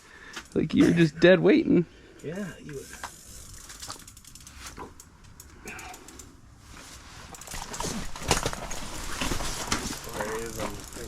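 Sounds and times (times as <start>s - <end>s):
fishing reel clicking: 2.9s - 6.3s, 10.4s - 11.0s.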